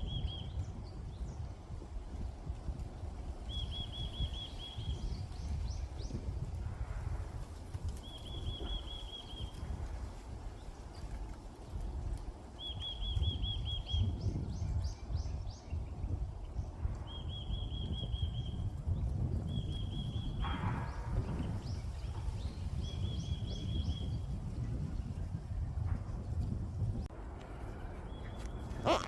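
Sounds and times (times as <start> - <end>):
songbird singing: 0.0 - 1.5, 3.5 - 6.2, 8.0 - 9.8, 12.6 - 16.0, 16.6 - 25.0, 27.6 - 29.0
wind rumble on microphone: 0.0 - 29.0.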